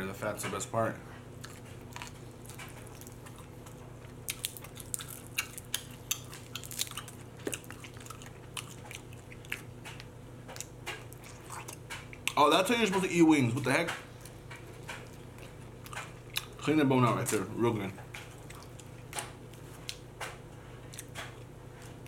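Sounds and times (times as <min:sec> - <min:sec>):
faint steady hum: 0:00.0 - 0:22.0
wet chewing and lip smacking: 0:01.4 - 0:13.1, 0:14.2 - 0:16.7, 0:18.0 - 0:20.1, 0:20.8 - 0:22.0.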